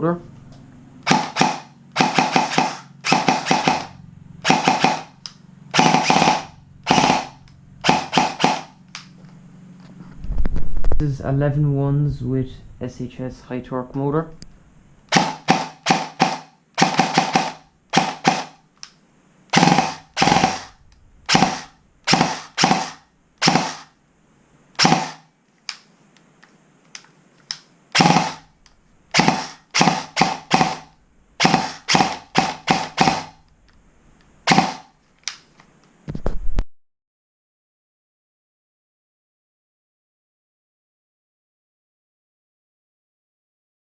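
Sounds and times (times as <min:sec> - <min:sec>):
airsoft gun shots: 0:01.0 - 0:08.8, 0:15.1 - 0:18.6, 0:19.5 - 0:23.9, 0:24.8 - 0:25.3, 0:27.9 - 0:28.4, 0:29.1 - 0:33.4, 0:34.5 - 0:34.9.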